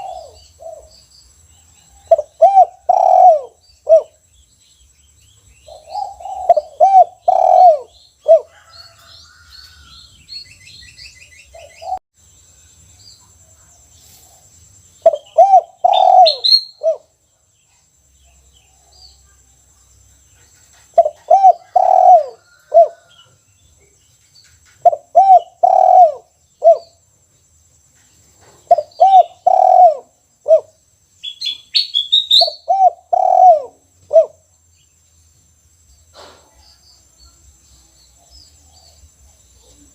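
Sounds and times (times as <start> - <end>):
dove cooing: 0.0 - 1.0, 1.9 - 4.2, 5.6 - 9.0, 11.5 - 12.0, 15.0 - 17.1, 20.8 - 23.2, 24.8 - 27.0, 28.5 - 30.8, 32.3 - 34.4
small birds chirping faintly: 0.0 - 39.9.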